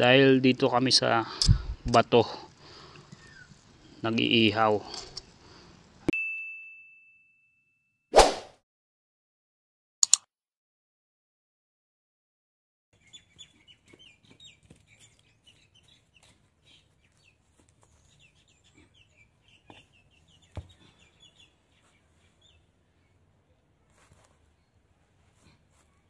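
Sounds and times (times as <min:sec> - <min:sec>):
birds chirping: 0:00.0 - 0:05.9, 0:13.0 - 0:23.6
sharp clicks: 0:10.0 - 0:10.3.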